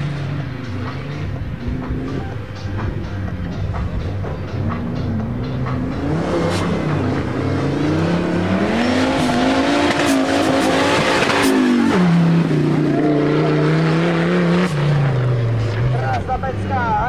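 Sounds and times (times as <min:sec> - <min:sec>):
race car engine accelerating: 0:04.0 - 0:16.7.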